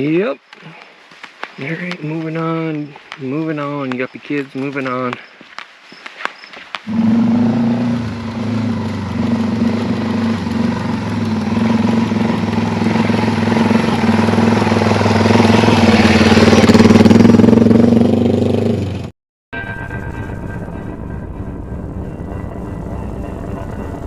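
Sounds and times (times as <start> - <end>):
motorcycle engine running: 6.9 - 19.1.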